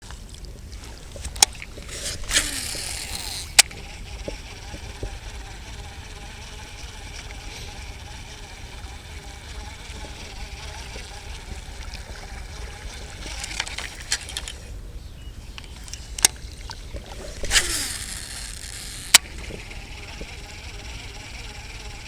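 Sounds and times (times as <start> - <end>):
sharp clicks: 1.2 - 11.0, 17.4 - 22.0
rustling: 16.8 - 21.5.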